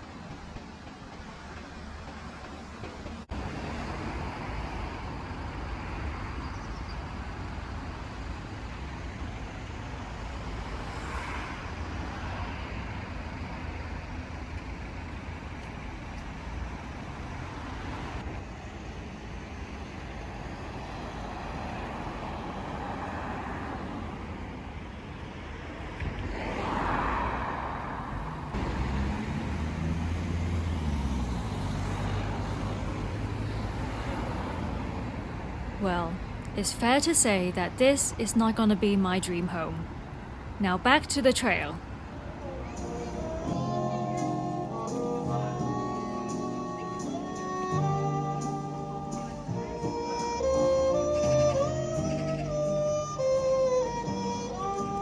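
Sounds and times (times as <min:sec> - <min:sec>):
road traffic passing: 0:00.0 - 0:55.0
nearby vehicle engine drone: 0:26.6 - 0:55.0.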